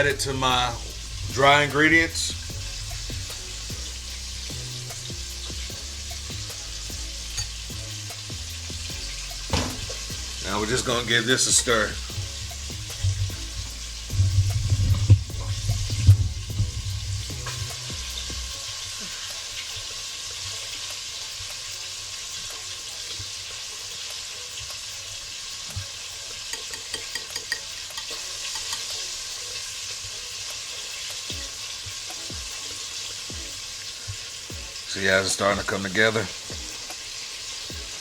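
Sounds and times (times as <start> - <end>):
chicken frying in hot oil: 0.0 - 38.0
batter stirred in a bowl: 25.8 - 29.0.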